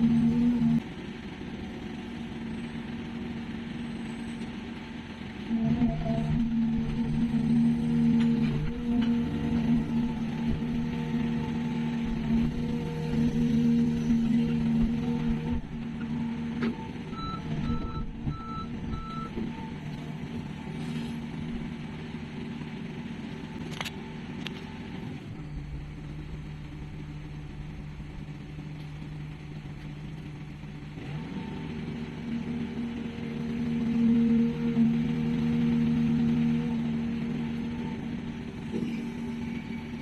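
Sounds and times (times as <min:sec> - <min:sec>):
diesel engine running: 0:00.0 - 0:40.0
reversing alarm beeps: 0:16.8 - 0:19.4.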